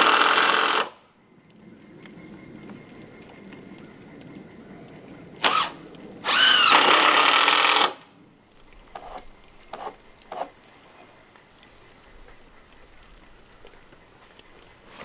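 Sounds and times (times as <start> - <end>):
battery drill running: 5.4 - 8.0.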